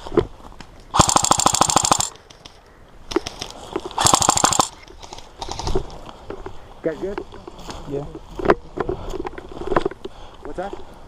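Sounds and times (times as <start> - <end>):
airsoft gun firing full-auto: 1.0 - 2.2, 4.0 - 4.8.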